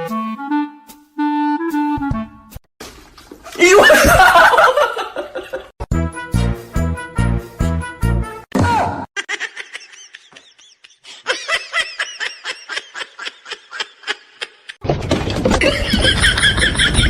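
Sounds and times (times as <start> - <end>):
rhythmic laughter: 9.2 - 14.8, 15.6 - 17.0.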